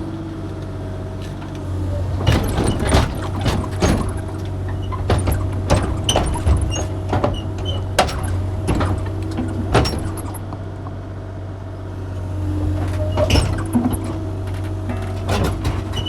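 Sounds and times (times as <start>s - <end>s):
excavator diesel engine running: 0.0s - 16.0s
sharp metallic clanks and knocks: 2.2s - 10.4s, 12.9s - 16.0s.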